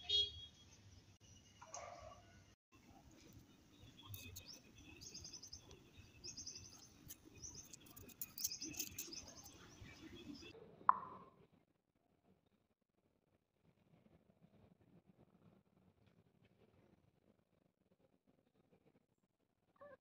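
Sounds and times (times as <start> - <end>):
small birds trilling: 3.8 - 10.5.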